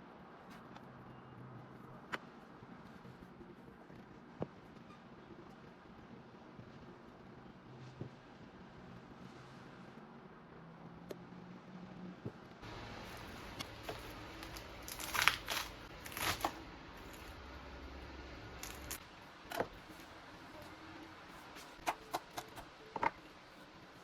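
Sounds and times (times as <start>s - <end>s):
crinkling and rustling: 12.9s - 17.4s, 18.6s - 20.8s.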